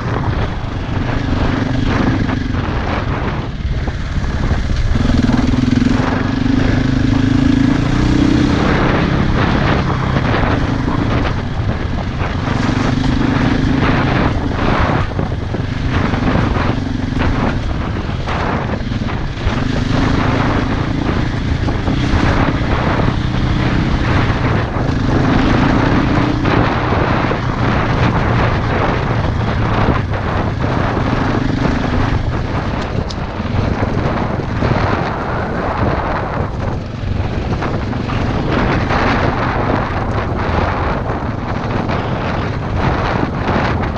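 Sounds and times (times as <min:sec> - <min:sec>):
dirt bike engine revving: 0:00.0 - 0:43.9
wind rush: 0:00.0 - 0:43.9.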